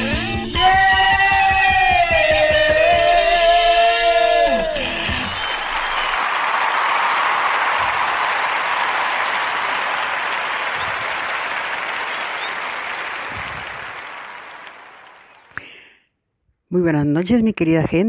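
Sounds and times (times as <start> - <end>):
crowd applause: 4.7 - 15.6.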